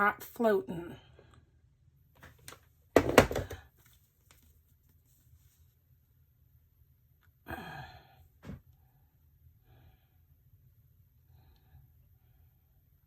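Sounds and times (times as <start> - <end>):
objects knocking on work surface: 3.0 - 3.6
person sighing: 7.4 - 8.2.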